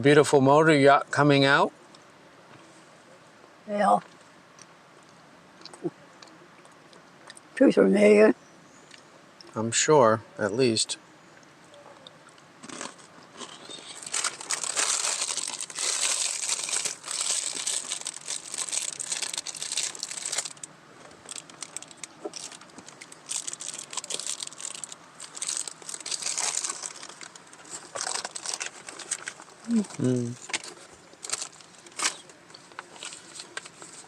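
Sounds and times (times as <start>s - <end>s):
snack packaging crinkling: 12.6s - 34.0s.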